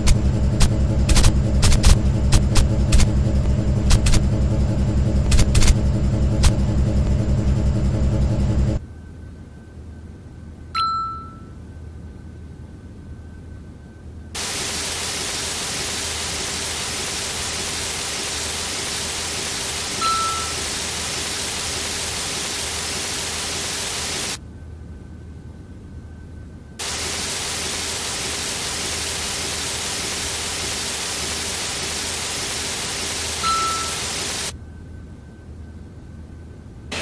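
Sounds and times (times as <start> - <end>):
bright ding: 10.8 - 11.6
carwash spray hiss: 14.4 - 24.4, 26.8 - 34.5.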